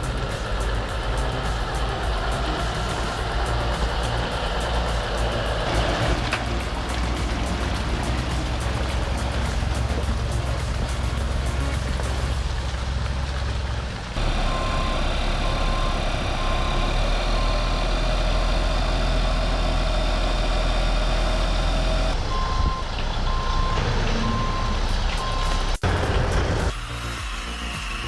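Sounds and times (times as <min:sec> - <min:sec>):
engine rumble: 0:00.0 - 0:27.2
reversing alarm beeping: 0:14.2 - 0:18.0, 0:22.2 - 0:25.6.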